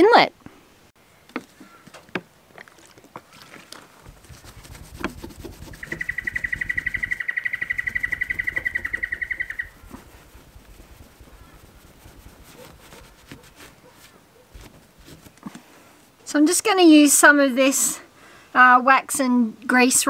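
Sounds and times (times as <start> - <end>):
bird fast even trill: 5.7 - 9.8.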